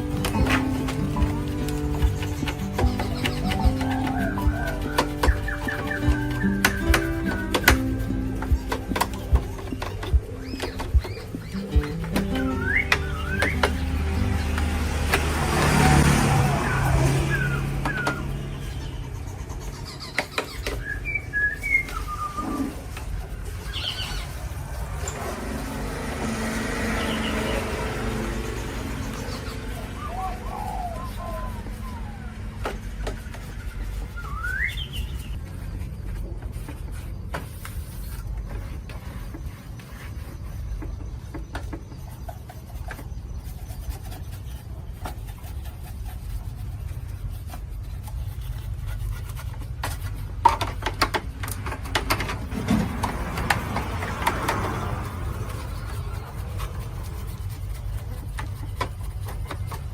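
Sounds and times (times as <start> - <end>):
sharp clicks and knocks: 0.0 - 16.4, 49.5 - 59.9
birds chirping: 0.0 - 49.6, 50.8 - 59.9.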